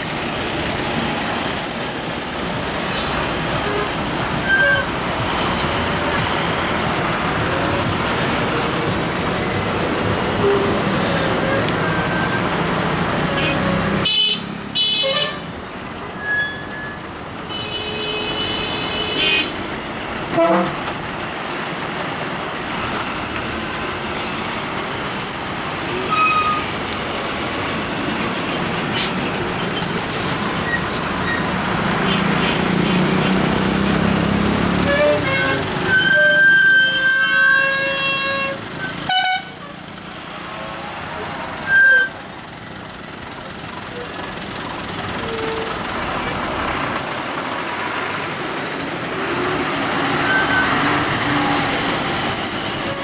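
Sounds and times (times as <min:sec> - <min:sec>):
heavy vehicle engines rumbling: 0:00.0 - 0:53.0
vehicle horns honking: 0:10.3 - 0:15.5, 0:16.2 - 0:19.7, 0:20.3 - 0:20.8, 0:29.0 - 0:39.7.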